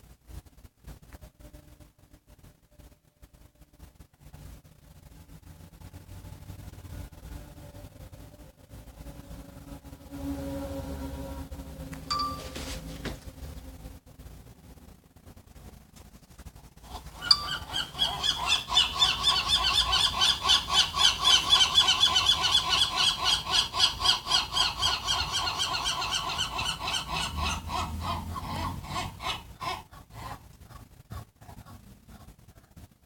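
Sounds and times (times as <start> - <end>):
gulls calling: 16.9 - 31.8.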